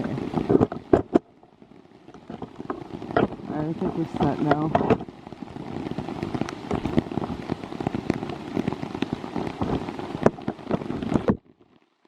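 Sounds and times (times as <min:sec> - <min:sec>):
rain pattering on microphone: 0:00.0 - 0:12.0.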